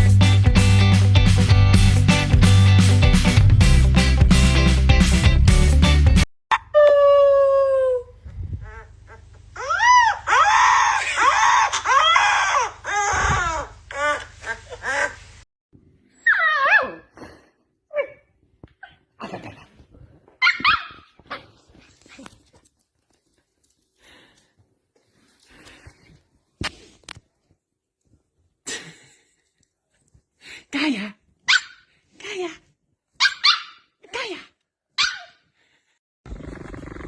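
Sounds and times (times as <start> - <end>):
dog whining and whimpering: 16.2 - 17.2.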